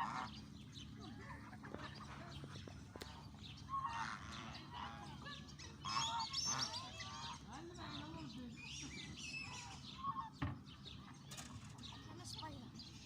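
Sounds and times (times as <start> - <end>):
geese honking: 0.0 - 0.4, 2.9 - 8.0.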